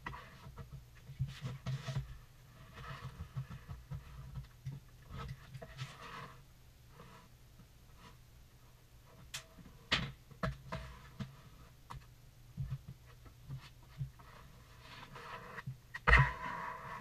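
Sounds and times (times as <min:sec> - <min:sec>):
tiles and tools tapping on plywood: 0:02.8 - 0:05.9.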